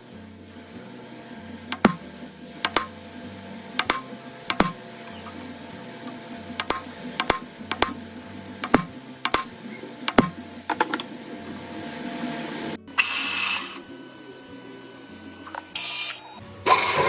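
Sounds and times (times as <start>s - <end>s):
faint machine hum: 0.0s - 17.0s
sharp metallic clicks: 1.7s - 3.0s, 3.8s - 5.4s, 6.0s - 8.0s, 8.6s - 10.5s.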